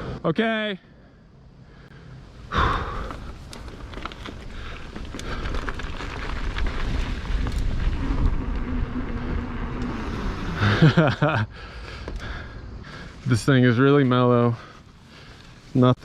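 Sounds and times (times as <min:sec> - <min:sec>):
bike tyre rumble on dirt: 0:02.0 - 0:16.0
bike clicks and rattles: 0:02.6 - 0:12.6
wind on microphone: 0:05.4 - 0:10.8.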